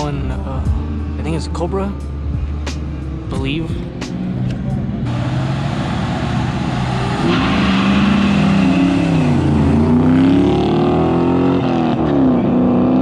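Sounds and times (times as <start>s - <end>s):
car engines accelerating hard: 0.0s - 13.0s.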